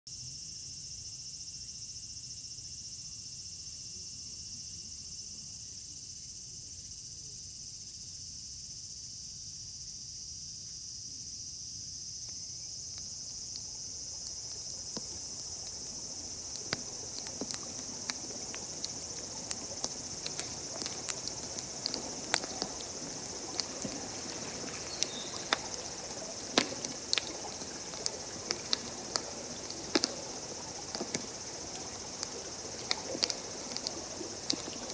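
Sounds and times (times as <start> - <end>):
crickets chirping: 0.1 - 34.9
campfire crackling and popping: 12.3 - 34.9.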